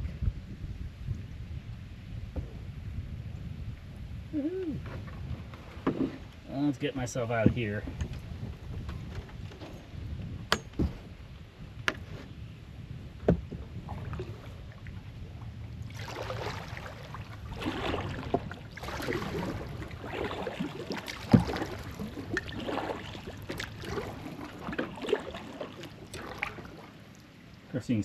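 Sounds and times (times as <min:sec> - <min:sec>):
paddle splashing water: 0:04.8 - 0:06.5, 0:13.1 - 0:27.8
paddle knocking hull: 0:07.4 - 0:09.6, 0:15.9 - 0:27.1.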